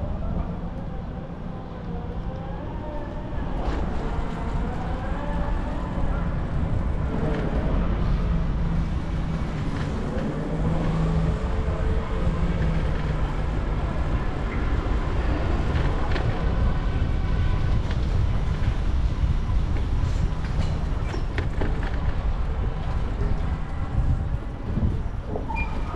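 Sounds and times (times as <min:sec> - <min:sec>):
low drone of traffic: 0:00.0 - 0:25.9
wind buffeting microphone: 0:00.0 - 0:25.9.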